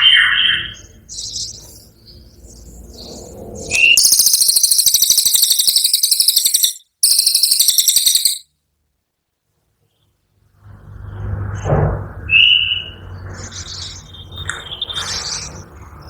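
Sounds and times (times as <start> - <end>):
songbird trilling: 3.7 - 8.4.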